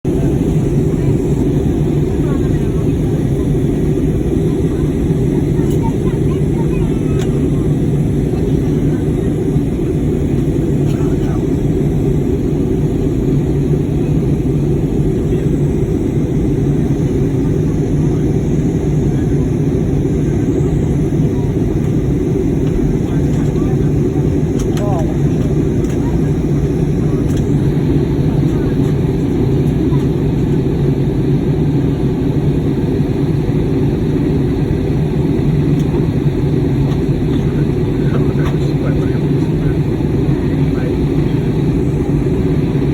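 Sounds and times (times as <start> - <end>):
airplane cabin rumble: 0.0 - 42.9.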